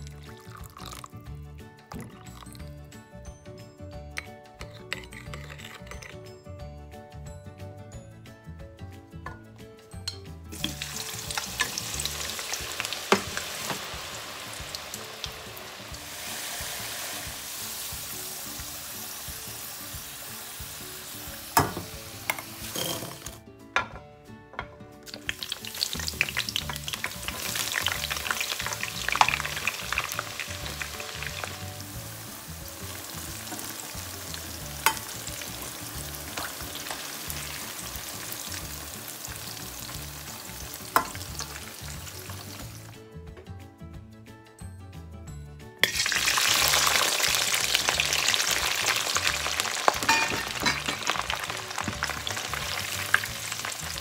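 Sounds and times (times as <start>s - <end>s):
food deep-frying in oil: 10.5s - 23.4s, 25.0s - 42.9s, 45.8s - 54.0s.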